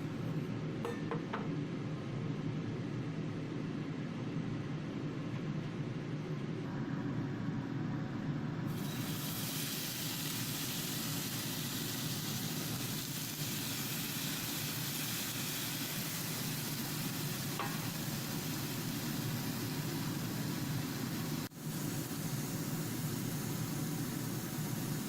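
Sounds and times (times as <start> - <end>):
steady low hum: 0.0 - 8.8
food sizzling in a frying pan: 8.7 - 25.0.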